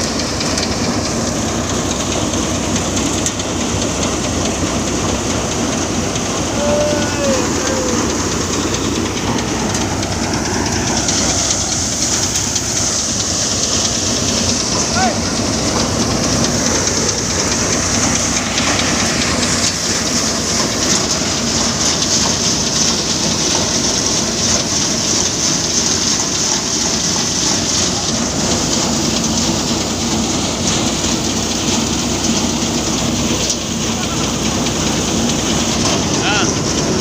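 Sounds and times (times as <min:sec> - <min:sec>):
engine hum: 0:00.0 - 0:37.0
thresher rushing hiss: 0:05.9 - 0:22.8.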